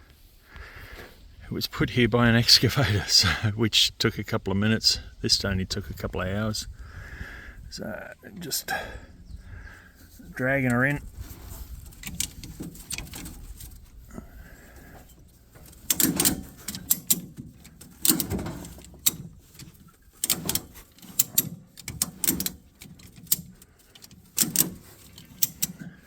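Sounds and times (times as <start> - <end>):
scraping: 9.5 - 26.0
metal clunks and knocks: 14.6 - 26.0.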